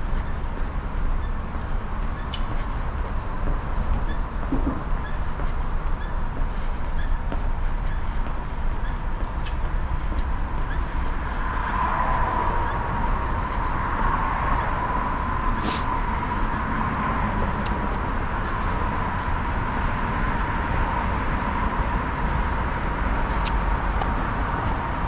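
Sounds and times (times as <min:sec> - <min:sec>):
low traffic rumble: 0:00.0 - 0:25.0
tyres hissing on road: 0:15.6 - 0:16.0.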